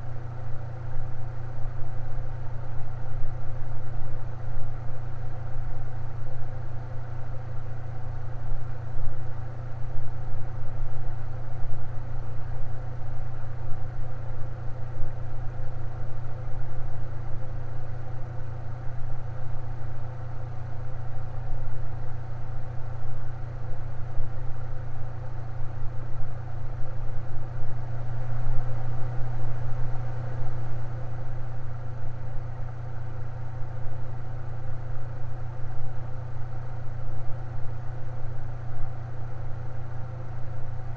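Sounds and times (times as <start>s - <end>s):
electric fan humming: 14.8s - 40.9s.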